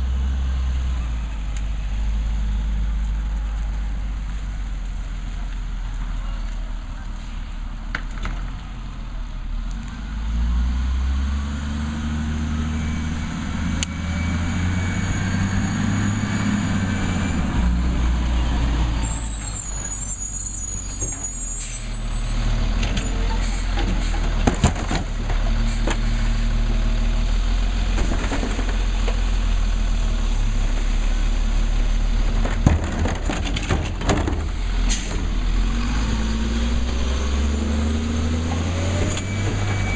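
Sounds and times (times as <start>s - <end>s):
diesel engine revving: 8.6s - 39.9s
air brake hiss: 25.7s - 26.5s.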